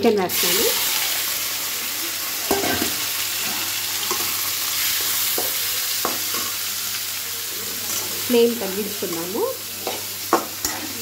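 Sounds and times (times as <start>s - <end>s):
chicken sizzling in hot oil: 0.0s - 11.0s
spatula tapping and scraping pan: 9.1s - 10.9s.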